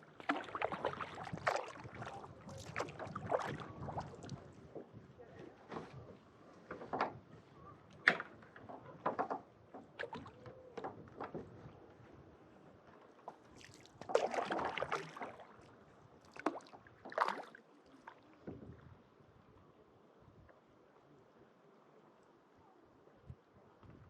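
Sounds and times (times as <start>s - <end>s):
paddle splashing water: 0.0s - 5.0s, 7.9s - 11.6s, 12.9s - 18.7s.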